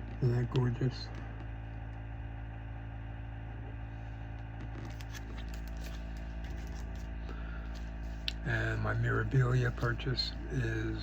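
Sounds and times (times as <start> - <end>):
low electrical hum: 0.0 - 11.0
paper rustling and ticking: 4.5 - 8.3.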